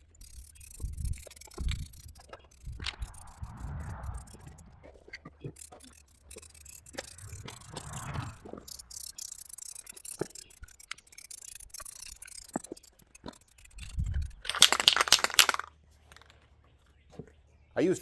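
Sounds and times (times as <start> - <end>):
loud rattling burst: 0.0 - 4.9, 5.6 - 16.3.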